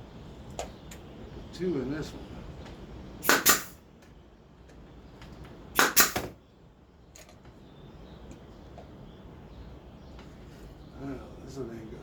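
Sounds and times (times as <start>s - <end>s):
nail gun shots: 3.2s - 3.8s, 5.7s - 6.4s.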